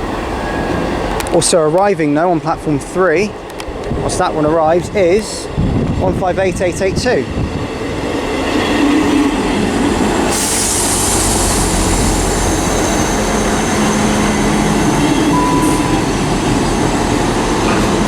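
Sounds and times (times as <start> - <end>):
rail noise: 0.0 - 18.0
diesel train engine: 7.4 - 18.0.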